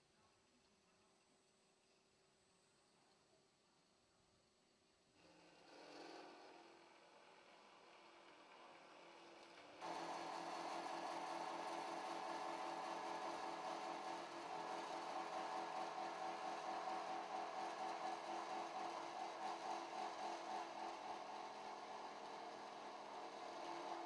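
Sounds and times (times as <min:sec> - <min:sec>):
sawing machine humming: 0:05.2 - 0:24.0.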